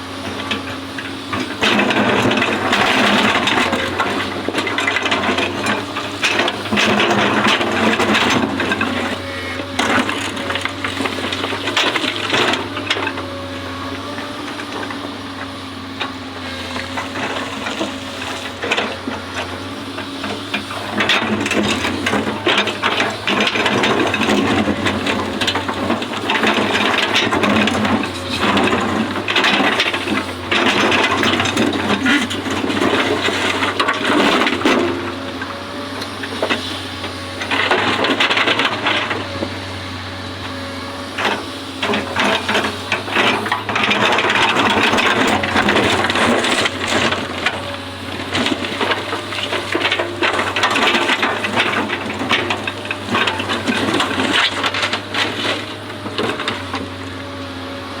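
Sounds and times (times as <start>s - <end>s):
diesel engine running: 0.0s - 58.0s
knocks and scraping: 20.3s - 36.8s.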